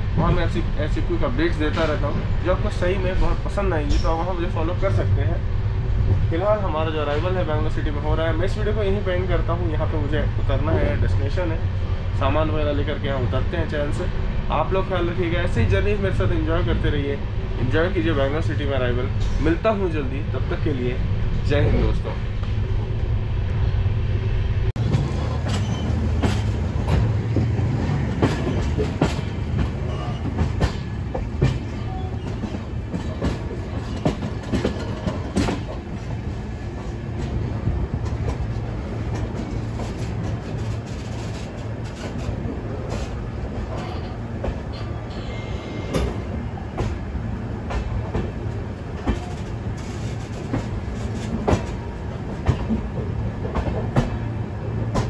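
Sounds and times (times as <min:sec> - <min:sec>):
low rumble of train wheels: 0:00.0 - 0:55.0
clacks over rail joints: 0:24.8 - 0:45.0, 0:45.9 - 0:55.0.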